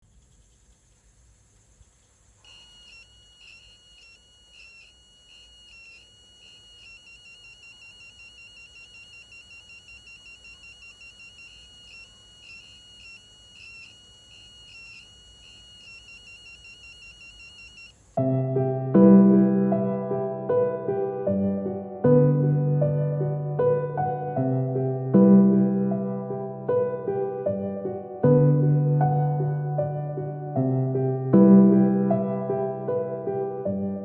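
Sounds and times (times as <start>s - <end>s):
electronic buzzer beeping: 2.4s - 18.0s
piano music: 18.2s - 34.0s.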